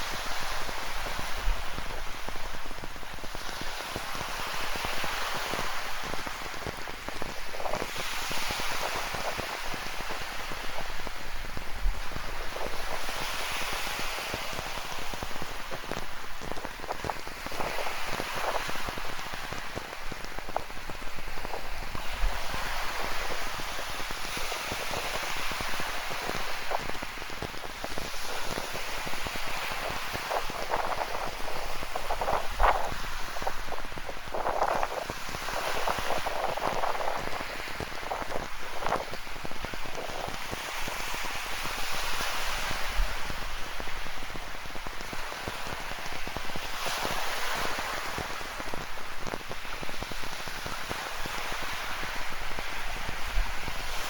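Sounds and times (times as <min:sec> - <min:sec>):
ocean surf: 0:00.0 - 0:54.0
rain pattering: 0:14.9 - 0:24.1, 0:29.8 - 0:40.5.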